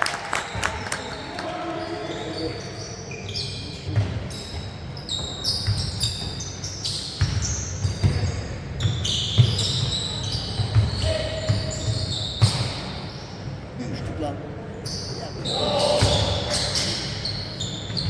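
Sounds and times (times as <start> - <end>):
shoe squeaks: 1.7 - 13.6, 14.8 - 18.0.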